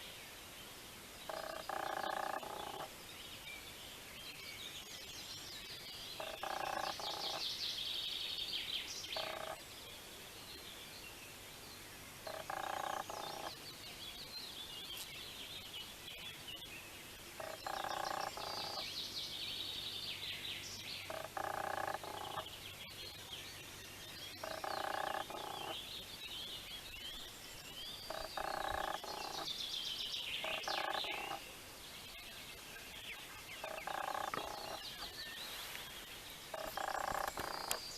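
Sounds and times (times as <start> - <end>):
frogs croaking: 1.3 - 2.9, 6.2 - 7.4, 9.2 - 9.6, 12.2 - 13.6, 17.4 - 18.9, 21.0 - 22.5, 24.4 - 25.8, 28.0 - 29.5, 30.4 - 31.4, 33.6 - 35.1, 36.5 - 37.9.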